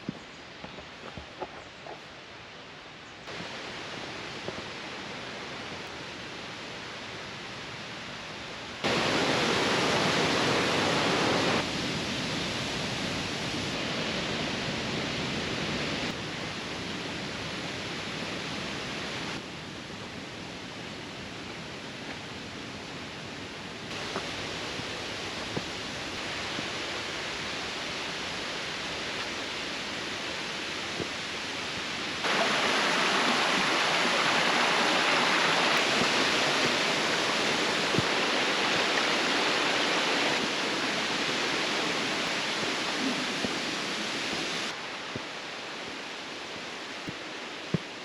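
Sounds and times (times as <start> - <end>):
mountain stream flowing: 0.0 - 48.0.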